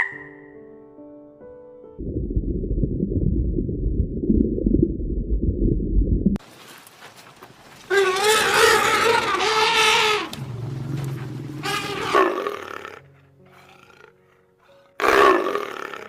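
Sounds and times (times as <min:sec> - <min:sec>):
animal call with wavering pitch: 0:07.9 - 0:14.1.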